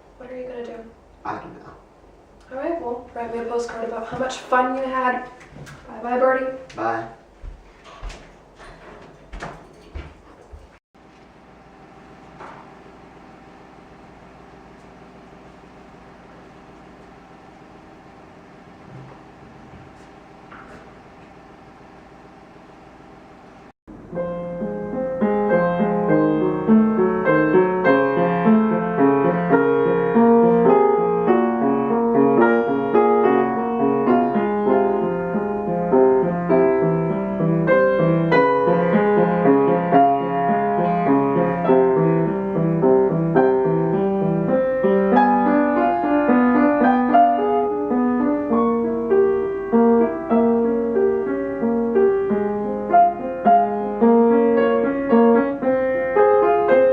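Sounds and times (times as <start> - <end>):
piano music: 23.9 - 56.9.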